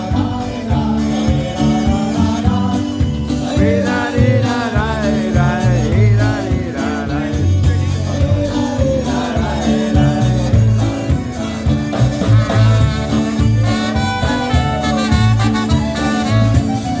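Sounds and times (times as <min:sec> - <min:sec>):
busy bass line: 0:00.0 - 0:17.0
polka band playing: 0:00.0 - 0:17.0
steady drum beat: 0:00.0 - 0:17.0
wavering melody line: 0:00.0 - 0:17.0.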